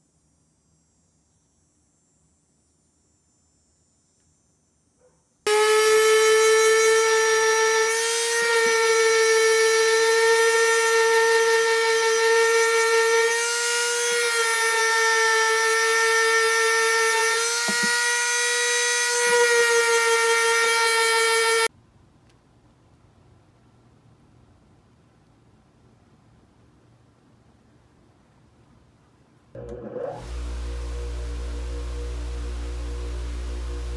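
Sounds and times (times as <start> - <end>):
high-pitched power tool whine: 5.5 - 21.7, 29.6 - 33.9.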